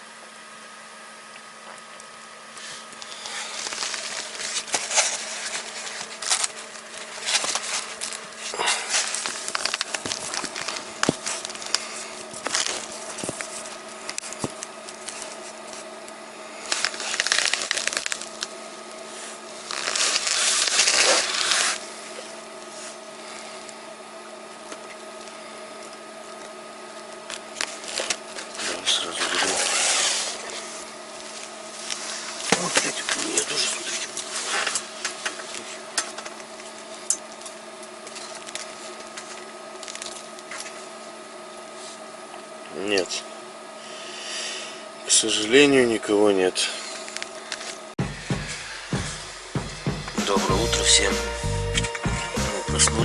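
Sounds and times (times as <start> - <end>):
steady faint hum: 0.0 - 53.0
crunching and rustling of movement: 2.5 - 23.8, 24.5 - 42.5
scraping rustles: 2.6 - 16.0, 16.6 - 22.0, 27.6 - 35.9.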